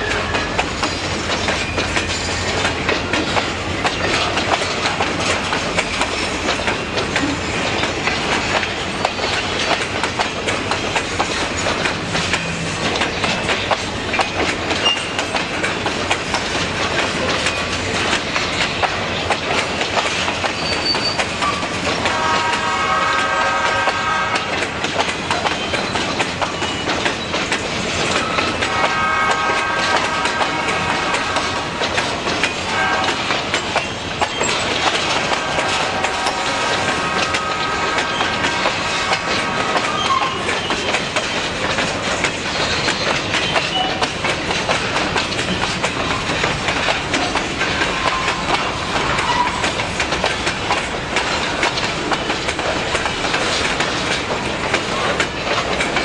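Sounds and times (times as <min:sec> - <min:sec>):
train horn blasts: 0:00.0 - 0:00.7, 0:22.0 - 0:24.6, 0:28.4 - 0:31.8, 0:32.7 - 0:33.4, 0:35.2 - 0:40.5
freight train wheels clattering: 0:00.0 - 0:56.0.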